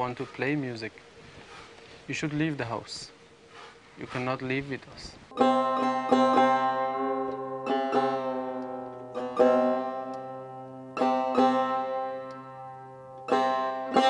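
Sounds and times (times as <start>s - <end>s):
low sustained tone: 0.0s - 14.0s
plucked long-necked lute: 5.3s - 14.0s.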